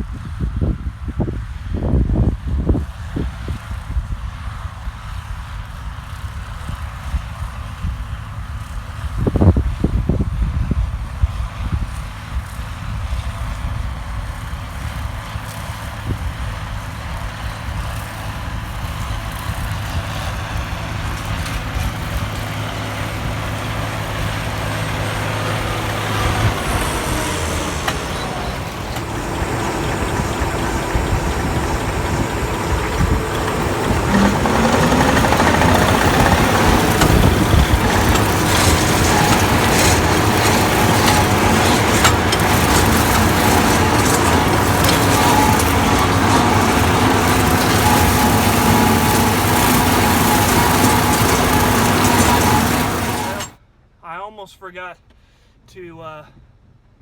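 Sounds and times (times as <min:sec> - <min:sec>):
tractor diesel engine running: 0:16.7 - 0:53.6.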